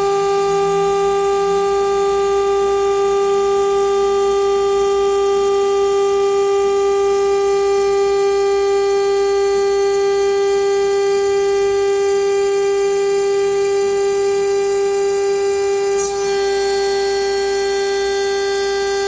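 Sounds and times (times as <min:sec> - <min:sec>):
machine spindle whining: 0:00.0 - 0:05.8, 0:13.9 - 0:19.0.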